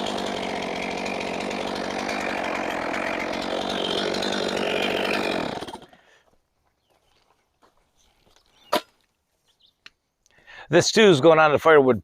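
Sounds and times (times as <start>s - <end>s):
sawmill gas engine running: 0.0s - 6.0s.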